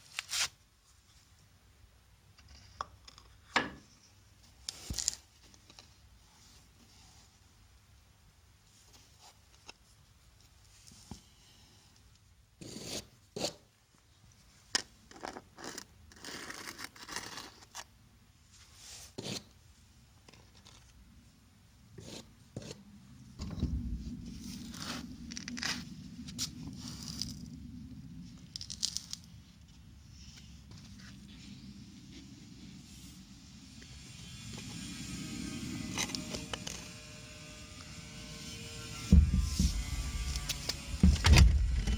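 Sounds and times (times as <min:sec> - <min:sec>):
low steady hum: 0:20.9 - 0:41.9
scrapes: 0:22.0 - 0:41.9
sharp knocks: 0:39.0 - 0:41.9.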